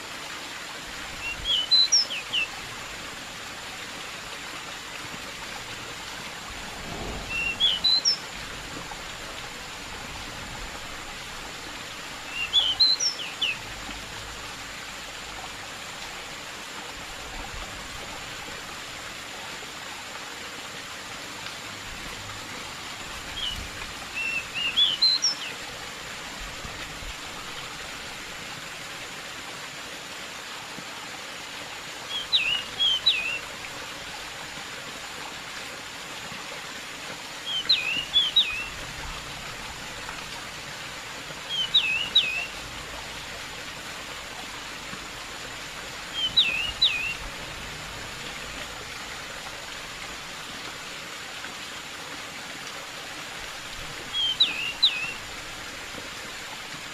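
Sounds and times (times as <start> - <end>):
flowing water rushing: 0.0 - 56.9
bird singing whistled phrases: 1.2 - 2.5, 7.3 - 8.2, 12.3 - 13.6, 24.2 - 25.5, 32.1 - 33.4, 37.4 - 38.7, 41.5 - 42.5, 46.1 - 47.2, 54.1 - 55.2.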